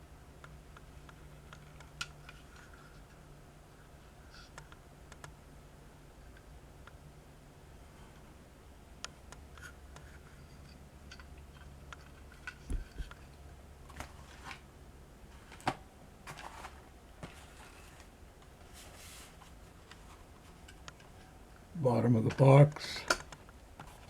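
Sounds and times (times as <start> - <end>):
low steady hum: 0.0 - 24.0
toy and cardboard box handled: 15.4 - 18.1.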